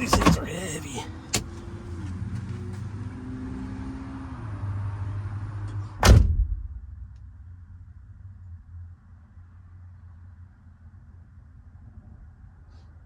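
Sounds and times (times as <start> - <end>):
loud heavy thump: 6.0 - 6.8.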